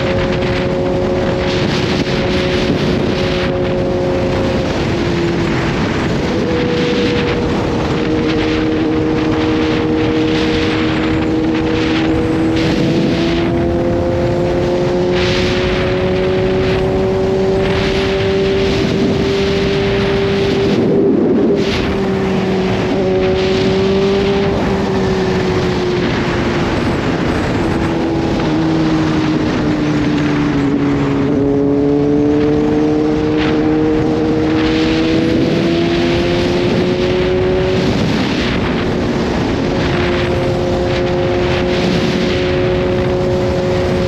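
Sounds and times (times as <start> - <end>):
motorcycle engine running: 0.0 - 44.0
wind rushing: 0.0 - 44.0.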